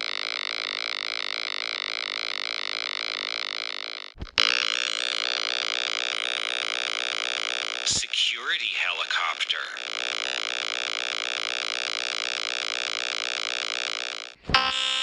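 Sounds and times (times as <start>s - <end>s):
pulsing helicopter rotor drone: 5.0s - 14.4s.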